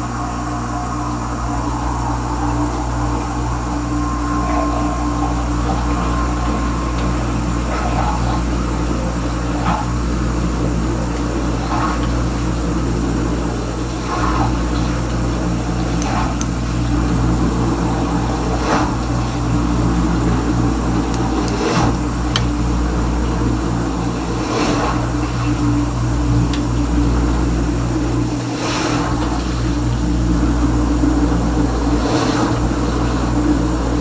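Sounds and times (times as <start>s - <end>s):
dishwasher pump humming: 0.0s - 34.0s
water spraying and swishing: 0.1s - 34.0s.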